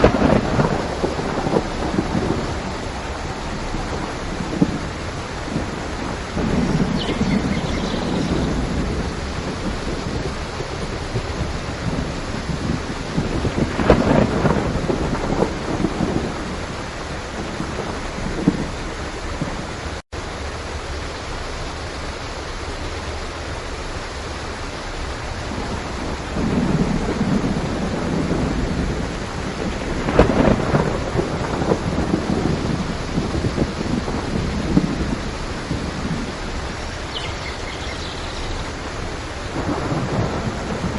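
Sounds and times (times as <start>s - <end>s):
rolling thunder: 0.0s - 19.8s, 25.4s - 40.9s
steady rain: 0.0s - 40.9s.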